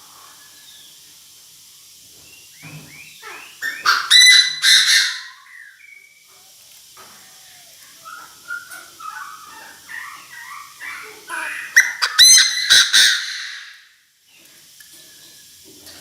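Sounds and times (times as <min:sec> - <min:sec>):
bird calling with falling notes: 0:02.2 - 0:06.4, 0:07.0 - 0:14.4
harsh bird calls: 0:02.2 - 0:06.4, 0:07.0 - 0:14.5.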